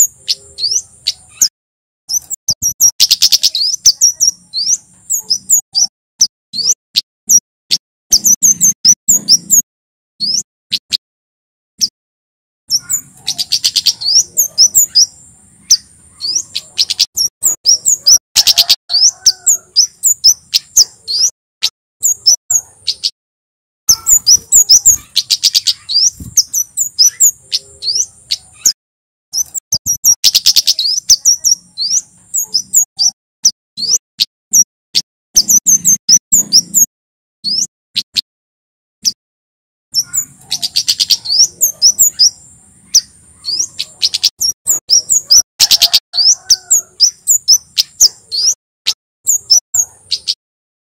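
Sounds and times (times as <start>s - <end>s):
thrush singing whistled notes: 2.1s - 9.6s, 10.2s - 10.9s, 23.9s - 28.7s, 29.3s - 34.7s.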